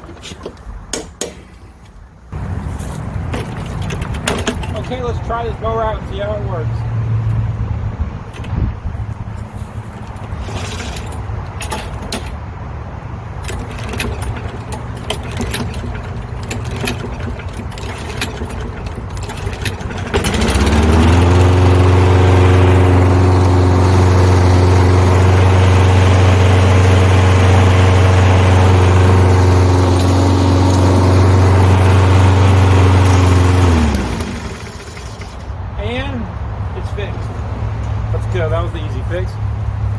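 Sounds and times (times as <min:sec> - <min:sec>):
lawn mower engine running: 0:02.3 - 0:39.9
low engine hum: 0:02.3 - 0:39.9
clicks and rattles: 0:03.2 - 0:05.2, 0:09.9 - 0:12.4, 0:13.4 - 0:25.5, 0:28.6 - 0:35.6.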